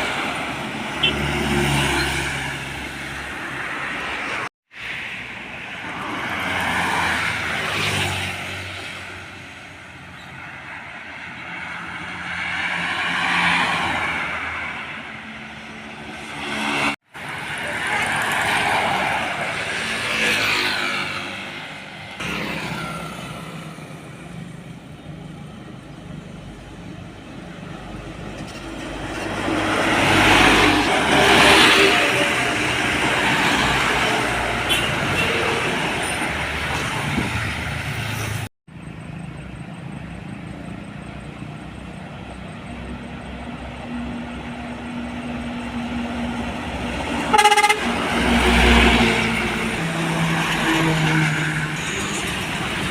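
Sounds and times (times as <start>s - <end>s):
trucks and buses passing: 0.0s - 52.9s
loud horn blast: 47.2s - 51.2s.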